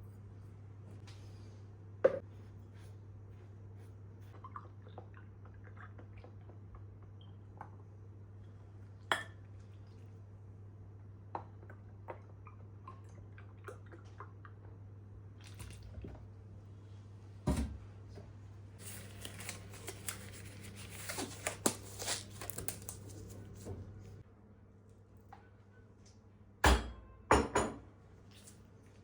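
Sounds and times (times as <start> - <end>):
rustling and crinkling: 18.8 - 24.2.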